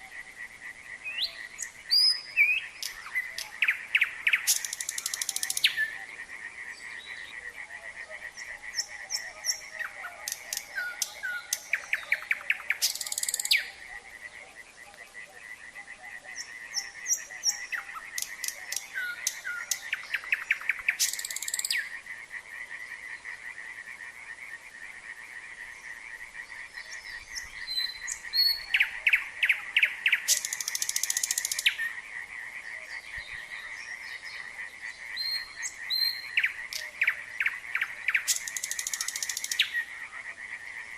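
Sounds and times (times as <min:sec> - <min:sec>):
frogs calling: 0:00.0 - 0:40.9
nightingale singing: 0:00.9 - 0:22.0, 0:25.7 - 0:32.0, 0:32.7 - 0:40.3.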